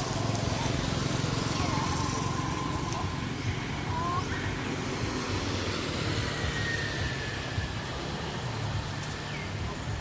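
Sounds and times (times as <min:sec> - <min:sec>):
motor vehicle engine rumble: 0:00.0 - 0:10.0.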